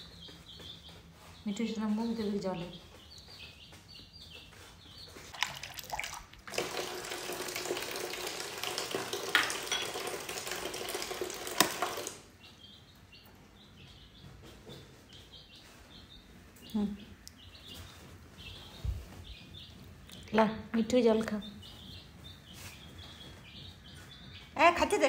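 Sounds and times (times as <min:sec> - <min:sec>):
water filling a container: 0:05.3 - 0:12.3.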